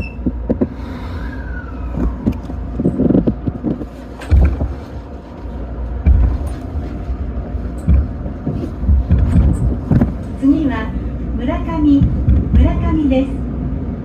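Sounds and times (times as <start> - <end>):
train rumbling: 0.0 - 14.0
heavy low thumps: 7.2 - 10.2, 11.9 - 12.9.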